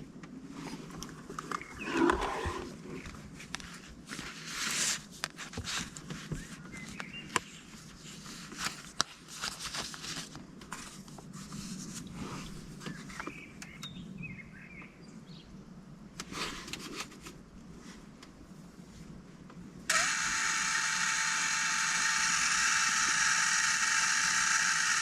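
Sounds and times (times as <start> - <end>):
paper rustling: 3.1 - 13.0.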